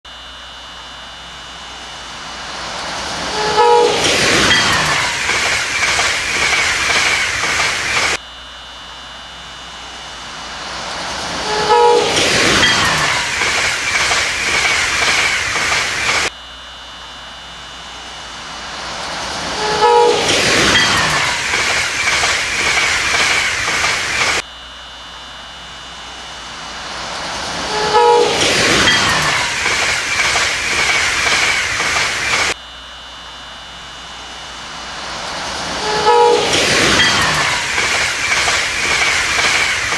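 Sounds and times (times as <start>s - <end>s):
train passing at speed: 0.9s - 8.2s, 9.3s - 16.3s, 17.6s - 24.4s, 25.6s - 32.6s, 33.7s - 39.9s
train horn: 3.2s - 5.2s, 11.4s - 13.3s, 19.5s - 20.4s, 27.6s - 28.6s, 35.8s - 36.6s.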